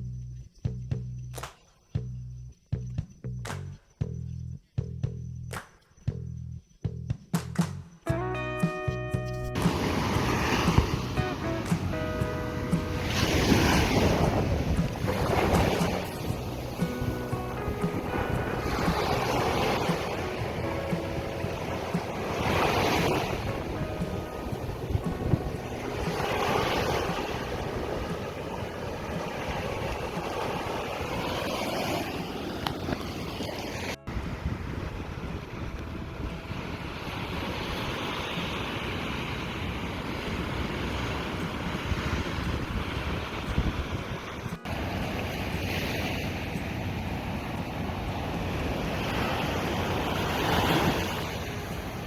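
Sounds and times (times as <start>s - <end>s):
water rushing: 9.5s - 52.0s
jet ski engine: 9.6s - 45.7s
wind buffeting microphone: 9.6s - 52.0s.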